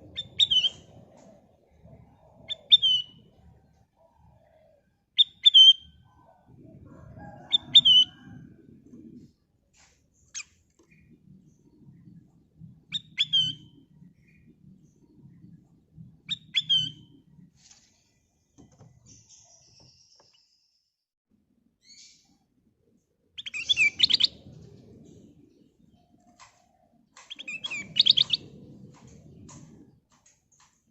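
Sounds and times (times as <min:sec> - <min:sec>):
faint low rumble: 0:00.0 - 0:04.7, 0:05.9 - 0:18.4, 0:23.9 - 0:30.2.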